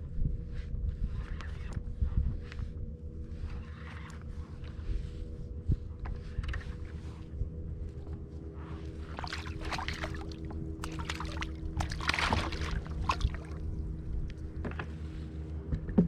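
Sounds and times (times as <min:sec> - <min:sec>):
steady low hum: 0:00.0 - 0:16.0
water sloshing and splashing: 0:08.5 - 0:14.9.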